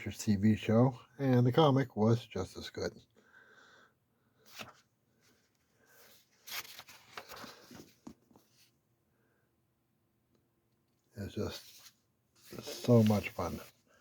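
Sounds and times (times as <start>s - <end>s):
paper pages rustling: 4.5s - 8.7s, 11.4s - 13.8s.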